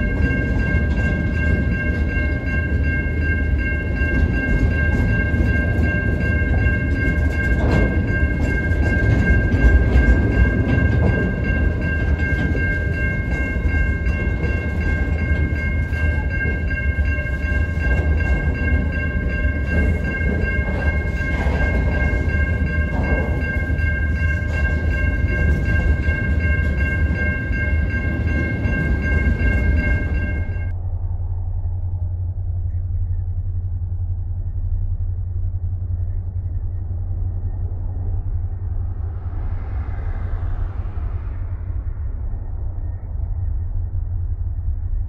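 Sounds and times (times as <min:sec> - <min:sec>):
freight train rumbling past: 0:00.0 - 0:32.5, 0:36.4 - 0:45.0
high-pitched whine: 0:00.0 - 0:45.0.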